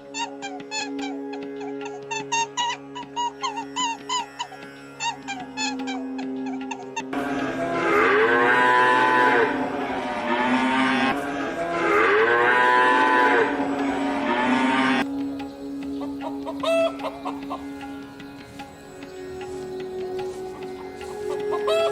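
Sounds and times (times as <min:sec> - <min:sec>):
cow mooing: 0:06.6 - 0:15.0.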